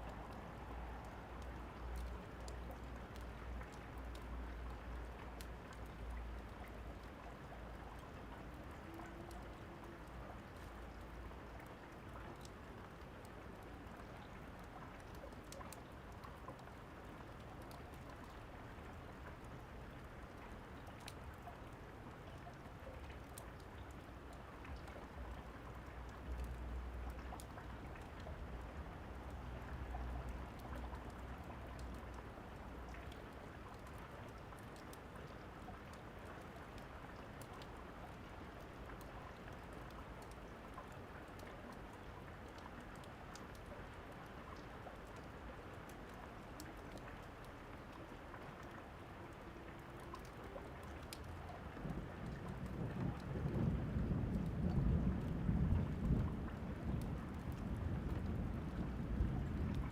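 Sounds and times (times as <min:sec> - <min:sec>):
steady rain: 0:00.0 - 0:59.9
thunder rumble: 0:51.8 - 0:59.9.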